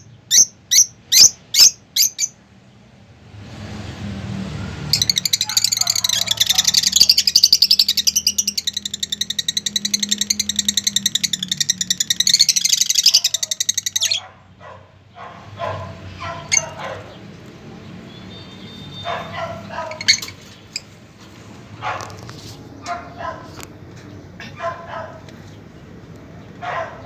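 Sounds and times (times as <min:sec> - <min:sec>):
birds chirping rapidly: 0:00.0 - 0:03.8, 0:04.7 - 0:27.0
lower bird calls: 0:04.9 - 0:14.3, 0:15.4 - 0:21.0.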